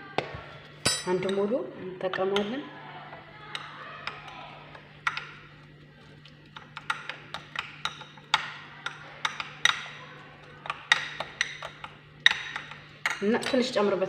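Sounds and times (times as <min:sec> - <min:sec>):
spoon clicking against bowl: 0:03.5 - 0:05.4, 0:06.5 - 0:13.5.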